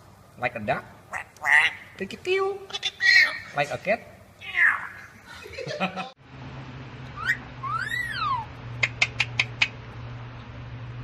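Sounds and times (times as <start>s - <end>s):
parrot voice-like call: 1.1s - 1.8s, 4.4s - 5.1s, 7.2s - 9.6s
parrot whistle: 7.2s - 8.5s
quick sharp clicks: 8.8s - 9.8s.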